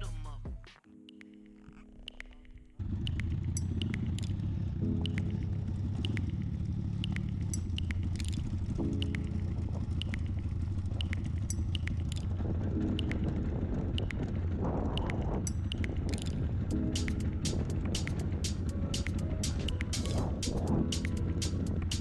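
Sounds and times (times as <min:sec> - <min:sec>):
vehicle engine and road rumble: 0:02.4 - 0:22.0.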